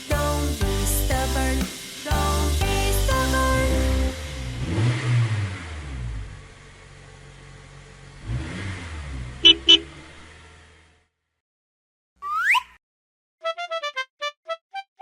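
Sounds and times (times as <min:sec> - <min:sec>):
music: 0:00.0 - 0:04.9, 0:13.4 - 0:15.0
cartoon bus engine revving: 0:00.2 - 0:06.9, 0:07.6 - 0:11.2
short horn beeps: 0:09.4 - 0:09.9.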